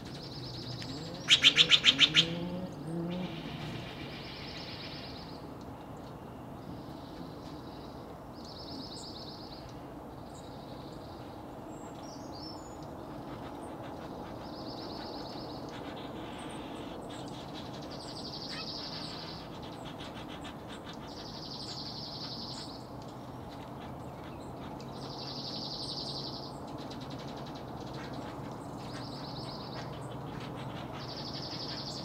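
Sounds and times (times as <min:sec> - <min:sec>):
high buzzy bird trill: 0:00.0 - 0:05.3.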